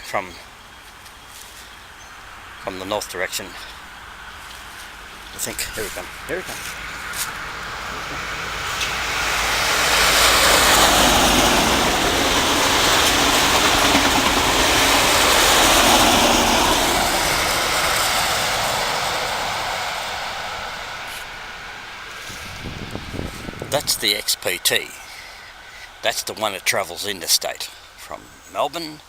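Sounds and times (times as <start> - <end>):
train wheels rumbling on rail: 3.4 - 25.0.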